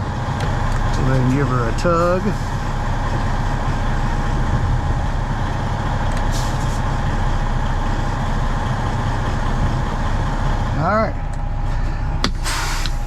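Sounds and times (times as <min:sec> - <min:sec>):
diesel truck engine running: 0:00.0 - 0:13.0
short air hiss: 0:06.3 - 0:06.8, 0:12.3 - 0:13.0.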